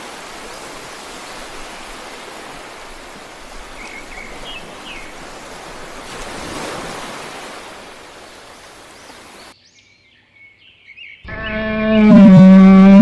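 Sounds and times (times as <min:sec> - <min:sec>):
surf washing on sand beach: 0:00.0 - 0:09.6.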